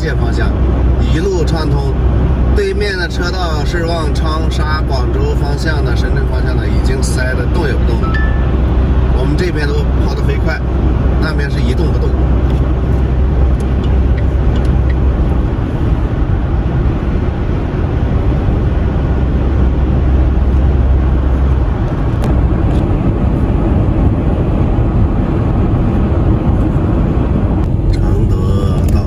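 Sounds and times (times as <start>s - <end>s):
car road and engine noise: 0.0s - 29.0s.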